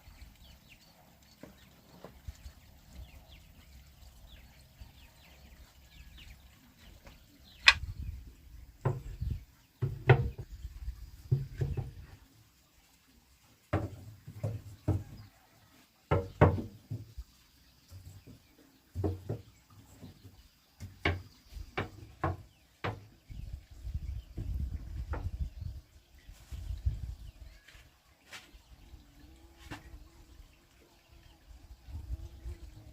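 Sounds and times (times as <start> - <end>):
wooden knocks and thumps: 7.0 - 8.1, 8.8 - 12.2, 13.7 - 15.4, 16.1 - 17.2, 18.0 - 25.5.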